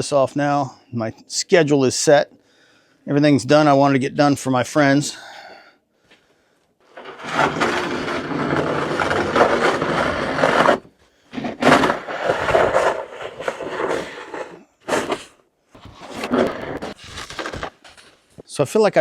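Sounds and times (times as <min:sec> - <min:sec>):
snow shovel scraping: 0:07.0 - 0:17.8.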